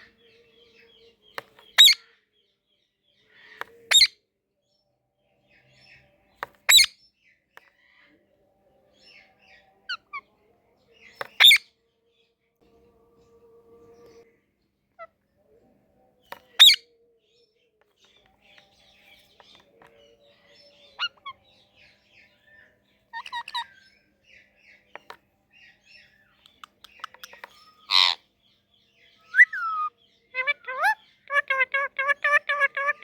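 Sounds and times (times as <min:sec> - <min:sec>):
parrot squawking: 0:06.7 - 0:06.9, 0:16.6 - 0:16.8, 0:23.1 - 0:23.8, 0:27.0 - 0:28.2, 0:29.3 - 0:33.0
parrot chirps and clicks: 0:26.4 - 0:28.1.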